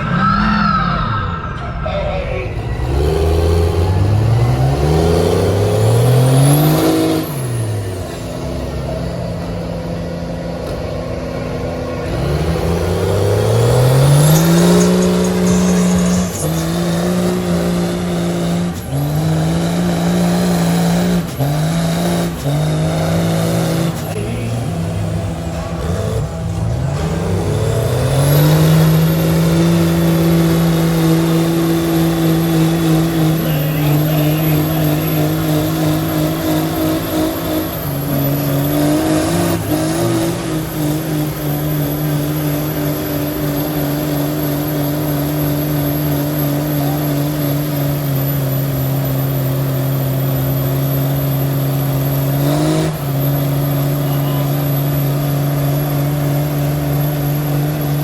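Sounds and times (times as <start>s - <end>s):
truck engine straining at high revs: 0.0s - 58.0s.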